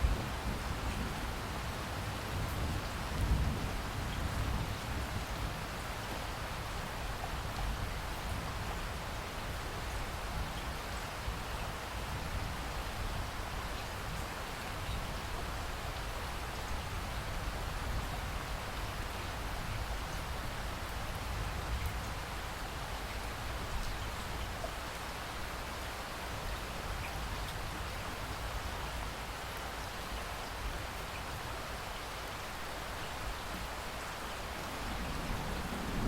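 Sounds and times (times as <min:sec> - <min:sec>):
steady rainfall hiss: 0:00.0 - 0:36.0
faint raindrop ticks: 0:20.9 - 0:22.2, 0:23.6 - 0:25.2.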